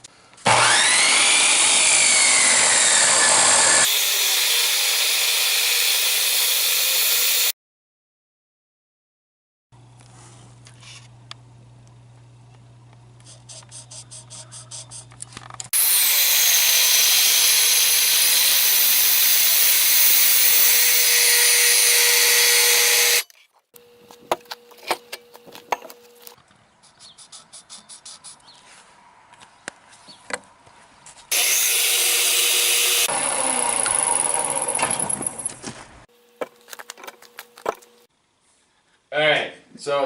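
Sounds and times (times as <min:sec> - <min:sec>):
power tool cutting steel tubing: 0:00.4 - 0:07.6, 0:15.7 - 0:23.3, 0:31.3 - 0:35.5.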